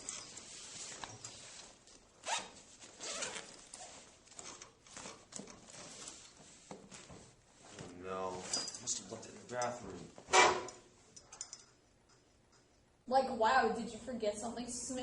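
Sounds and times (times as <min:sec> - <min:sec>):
quiet rustling: 0:00.0 - 0:12.8
zipper pulls: 0:02.2 - 0:05.2.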